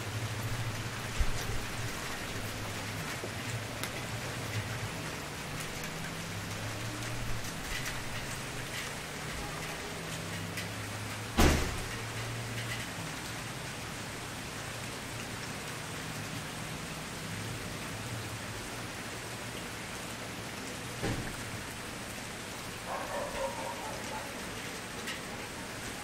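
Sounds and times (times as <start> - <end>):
wood fire crackling: 0.2 - 9.8.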